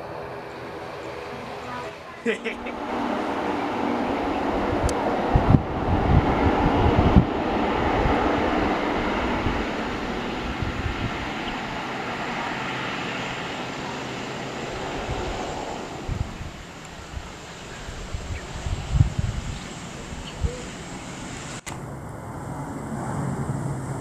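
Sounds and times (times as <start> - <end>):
jet airliner passing: 0.0 - 24.0
wind thumps on microphone: 2.8 - 12.1, 14.8 - 20.7.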